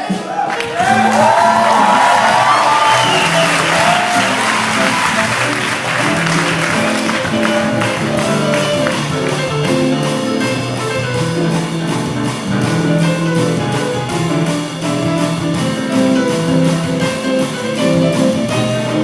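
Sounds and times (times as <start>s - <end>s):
big band horns playing: 0.0s - 19.0s
audience applause: 0.3s - 10.7s.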